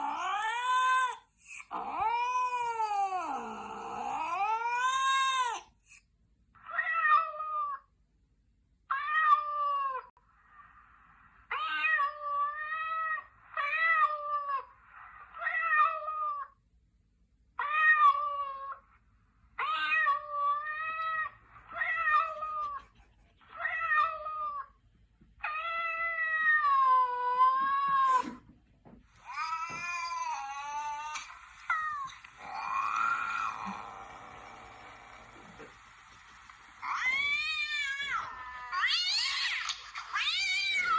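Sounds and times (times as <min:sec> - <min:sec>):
cats yowling: 0:00.0 - 0:05.7, 0:06.6 - 0:07.9, 0:15.4 - 0:16.5, 0:17.6 - 0:18.8, 0:19.6 - 0:23.0, 0:23.6 - 0:24.8, 0:25.4 - 0:28.4, 0:29.2 - 0:35.8, 0:36.8 - 0:40.9.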